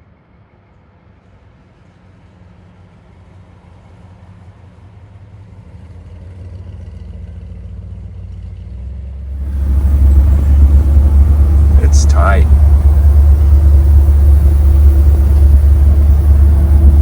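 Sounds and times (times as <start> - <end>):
car engine rumbling: 9.3 - 17.0.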